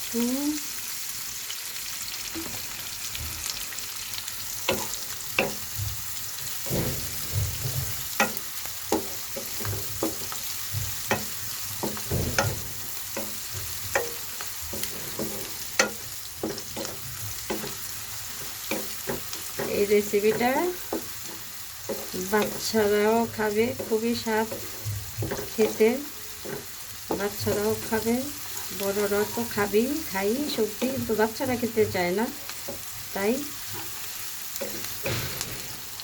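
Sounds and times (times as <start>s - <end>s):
onions sizzling in a frying pan: 0.0s - 36.0s
spatula scraping a pan: 4.4s - 36.0s.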